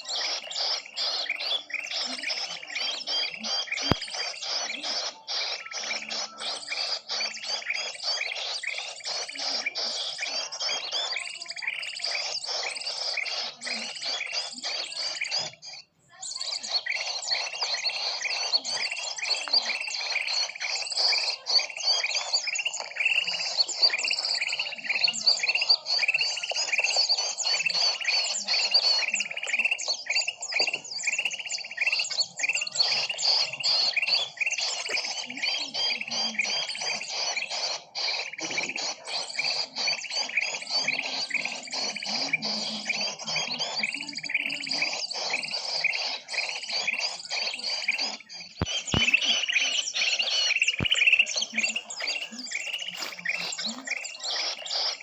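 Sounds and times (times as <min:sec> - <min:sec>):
chorus of small birds chirping: 0:00.0 - 0:55.0.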